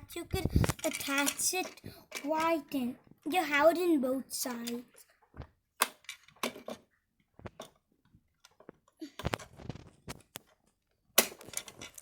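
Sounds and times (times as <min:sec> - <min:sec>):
plastic toy parts clicking: 0:00.6 - 0:02.8, 0:05.8 - 0:06.8.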